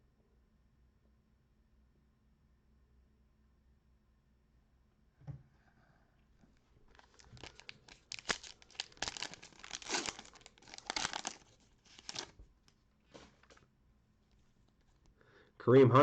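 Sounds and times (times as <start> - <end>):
plastic wrapper tearing and crinkling: 6.9 - 12.4.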